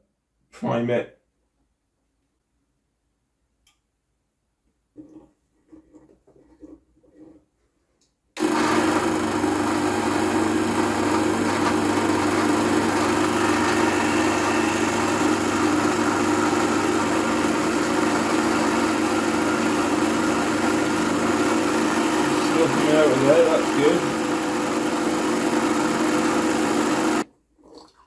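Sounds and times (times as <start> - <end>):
espresso machine pump buzzing: 8.4 - 27.2.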